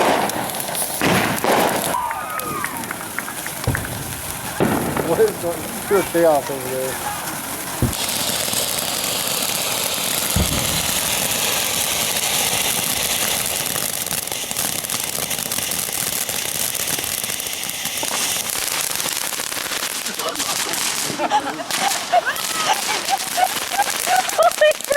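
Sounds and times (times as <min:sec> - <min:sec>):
fireworks fizzing and crackling: 0:00.0 - 0:24.9
dull thumps: 0:03.6 - 0:06.2, 0:07.7 - 0:08.2.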